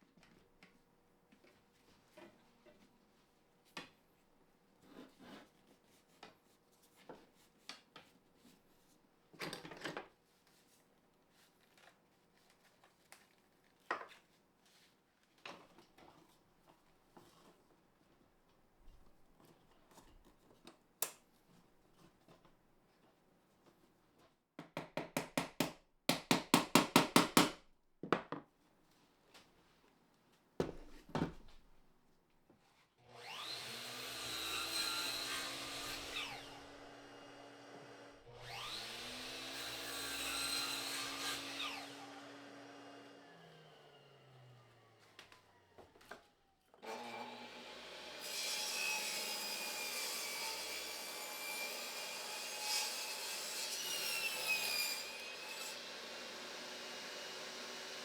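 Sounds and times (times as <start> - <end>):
power saw cutting wood: 33.1 - 45.4, 46.8 - 58.0.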